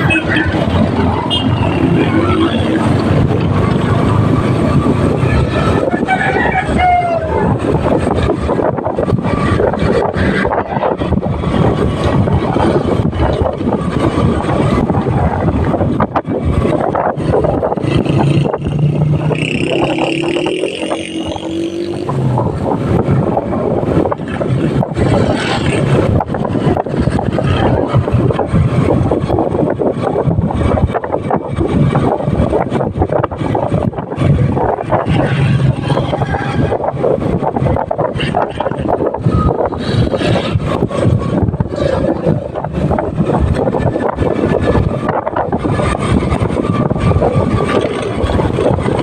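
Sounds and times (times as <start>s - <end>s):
motorcycle engine: 0.0s - 6.4s, 7.2s - 49.0s
wind buffeting microphone: 0.0s - 49.0s.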